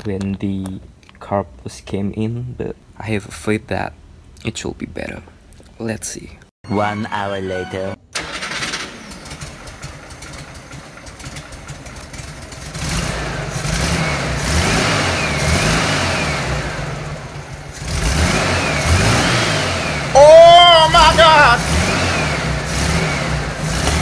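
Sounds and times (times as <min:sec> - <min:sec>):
car engine revving: 0:12.2 - 0:24.0.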